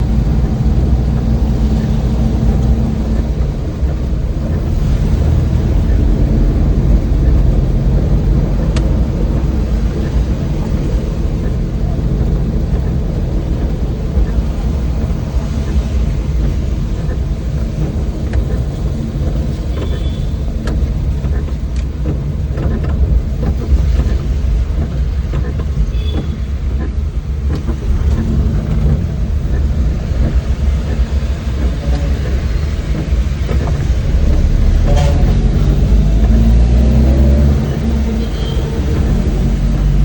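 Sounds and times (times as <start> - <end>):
van engine and road noise: 0.0 - 40.0.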